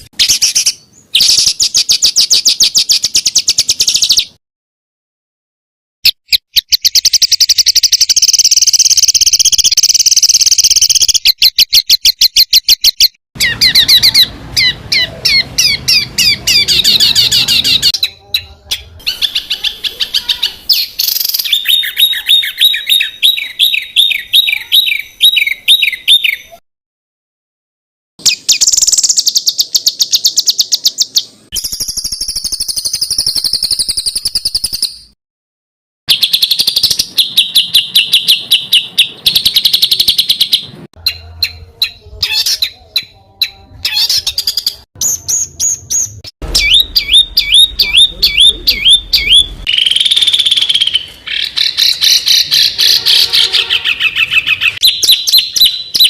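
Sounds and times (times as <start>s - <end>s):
high bird trilling: 0.0s - 4.4s, 6.0s - 26.6s, 28.2s - 35.2s, 36.1s - 56.0s
songbird calls: 6.1s - 26.6s, 36.1s - 56.0s.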